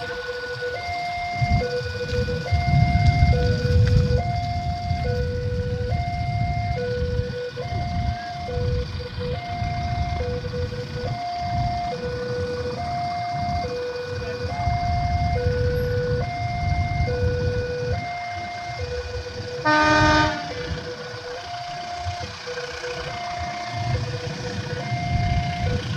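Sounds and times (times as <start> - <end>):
level crossing two-tone alarm: 0.0 - 25.9
passing traffic rumble: 0.0 - 25.9
loud horn: 19.6 - 21.0.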